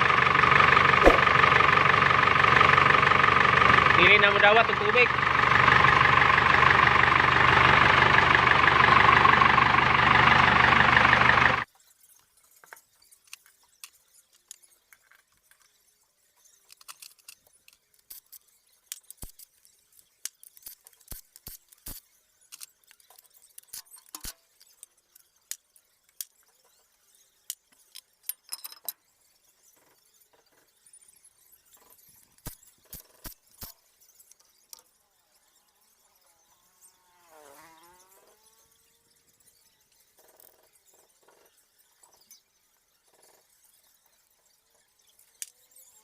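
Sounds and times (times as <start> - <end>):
engine running: 0.0 - 11.6
metallic clicks and clinks: 27.5 - 29.0.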